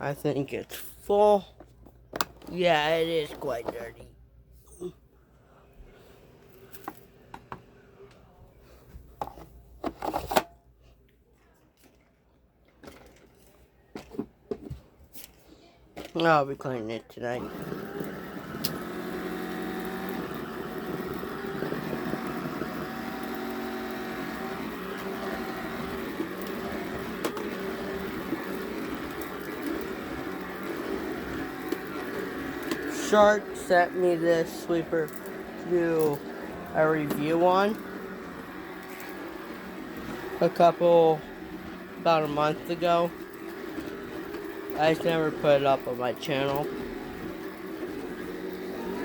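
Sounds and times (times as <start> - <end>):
electric motor humming: 17.4 - 49.0
carpet sweeper rattling clatter: 18.7 - 47.6.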